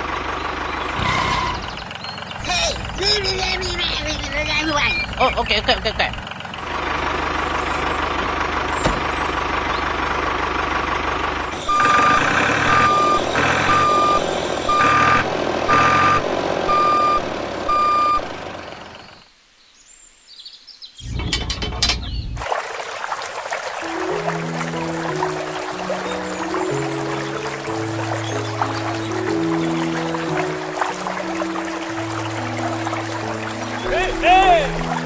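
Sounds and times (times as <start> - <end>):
reversing alarm beeps: 11.6 - 18.3
music: 23.8 - 35.0.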